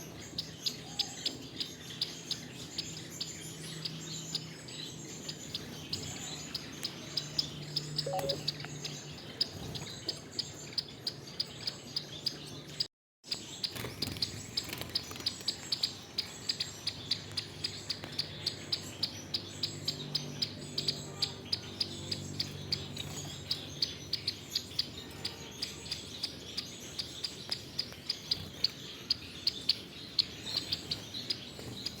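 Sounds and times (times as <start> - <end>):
finches chirping: 0.0 - 32.0.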